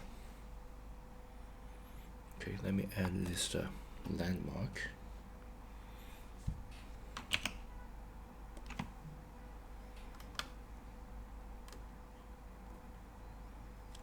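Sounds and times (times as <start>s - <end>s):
faint steady hum: 0.0s - 14.0s
keyboard keys clicking: 7.2s - 7.6s, 8.6s - 8.9s, 10.0s - 10.6s.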